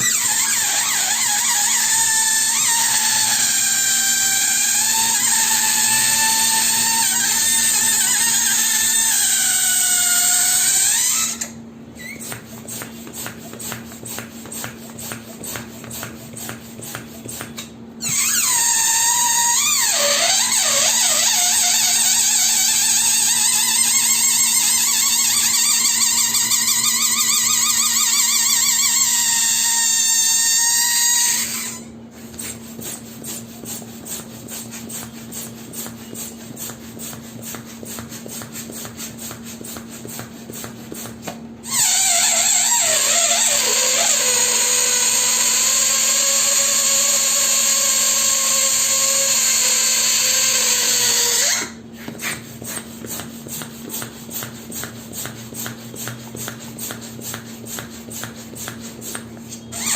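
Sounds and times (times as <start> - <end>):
balloon squealing as air escapes: 0.0 - 33.0, 41.6 - 52.9, 59.1 - 59.9.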